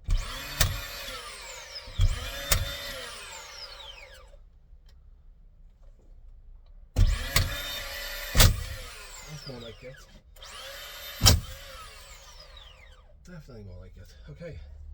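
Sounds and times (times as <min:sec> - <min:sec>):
nail gun motor whir: 0:00.0 - 0:04.4, 0:07.0 - 0:13.1
nail gun shots: 0:00.1 - 0:01.3, 0:01.9 - 0:03.0, 0:07.0 - 0:09.2, 0:11.1 - 0:12.0.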